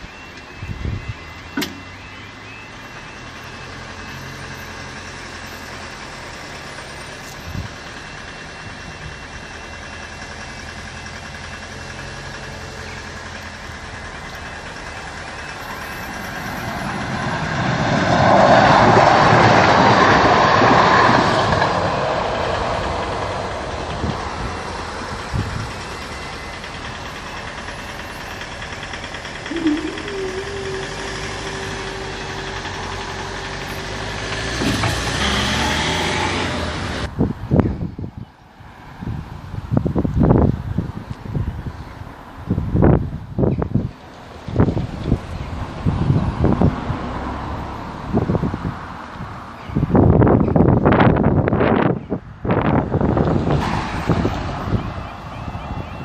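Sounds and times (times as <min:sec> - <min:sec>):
road traffic engine hum: 0:00.0 - 0:56.0
train wheels rumbling on rails: 0:03.6 - 0:37.8.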